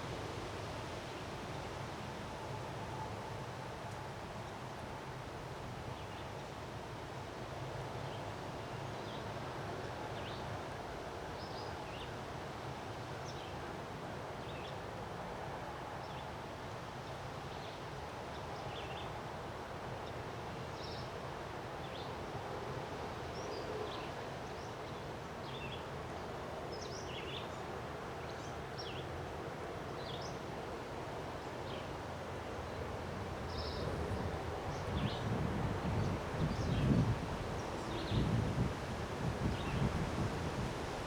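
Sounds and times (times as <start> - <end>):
strong wind through trees: 0.0 - 41.0
wind buffeting microphone: 33.6 - 41.0.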